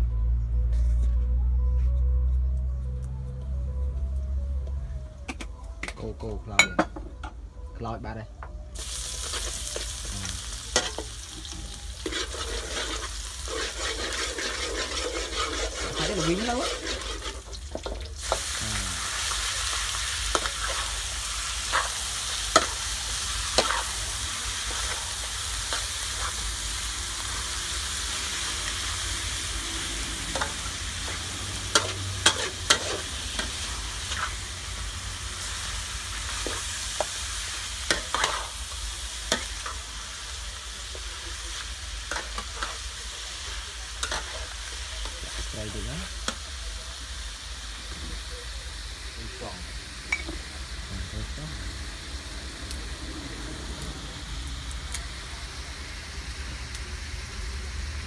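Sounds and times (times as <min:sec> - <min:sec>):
oil sizzling in a wok: 0:08.7 - 0:58.0
metal spatula scraping a pan: 0:10.7 - 0:18.0, 0:23.4 - 0:24.0, 0:30.2 - 0:34.5, 0:37.8 - 0:38.6, 0:42.0 - 0:42.9.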